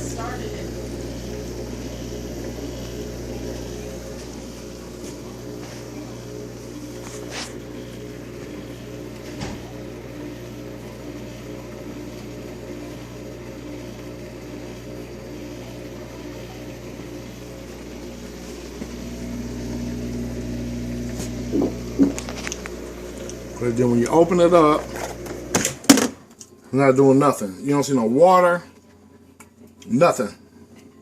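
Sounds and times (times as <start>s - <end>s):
dishwasher humming: 0.0s - 31.0s.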